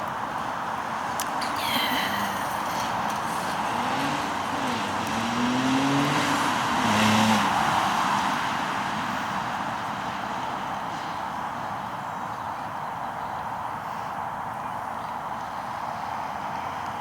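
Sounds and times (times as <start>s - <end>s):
car engine revving: 2.1s - 9.3s.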